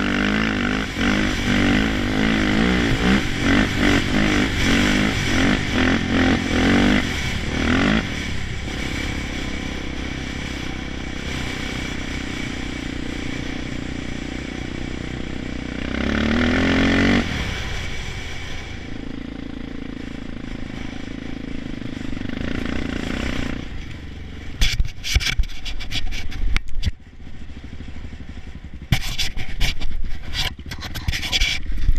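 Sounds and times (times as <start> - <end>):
quad engine revving: 0.0 - 25.1.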